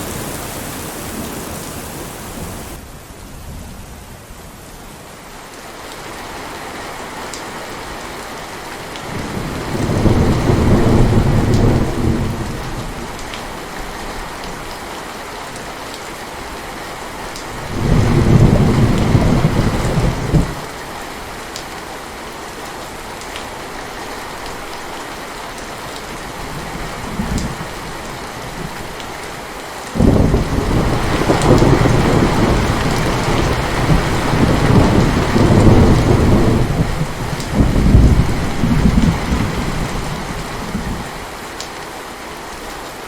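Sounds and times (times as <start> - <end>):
thunder rolling: 0.0 - 2.8, 30.0 - 41.1
heavy rain: 0.0 - 43.0.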